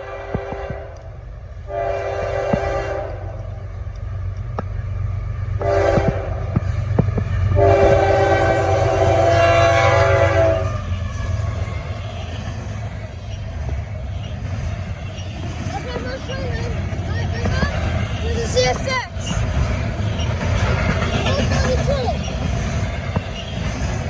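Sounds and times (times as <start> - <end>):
wheels clicking over rail joints: 0.0 - 1.7, 2.3 - 24.0
locomotive air horn blasts: 0.0 - 3.6, 5.6 - 24.0
low rumble of train: 0.0 - 24.0.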